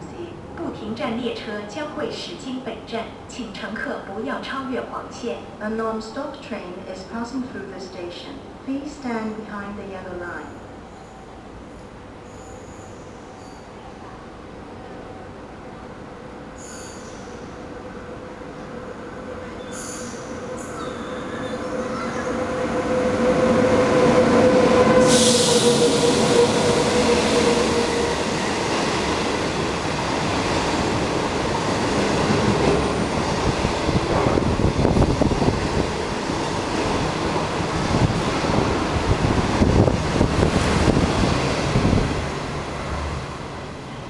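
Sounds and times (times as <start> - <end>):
train coaches rumbling: 11.4 - 44.0
locomotive whine: 16.7 - 28.6.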